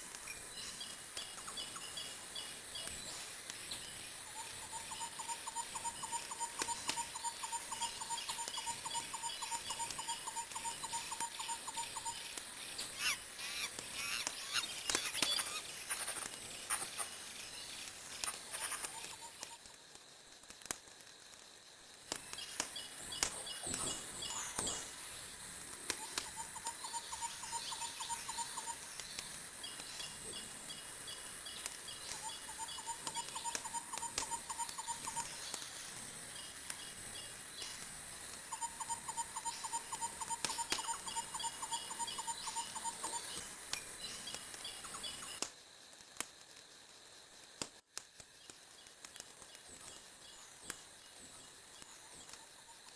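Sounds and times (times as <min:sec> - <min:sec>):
wood fire crackling: 0:12.3 - 0:26.7, 0:28.8 - 0:38.5, 0:42.7 - 0:52.4
rapid trilling chirp: 0:26.0 - 0:35.7, 0:38.5 - 0:45.4.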